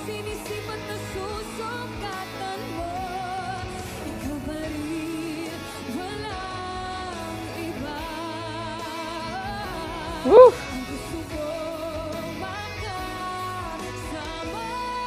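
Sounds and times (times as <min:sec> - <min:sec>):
woman singing pop song: 0:00.0 - 0:15.0
instrumental backing track: 0:10.2 - 0:10.6.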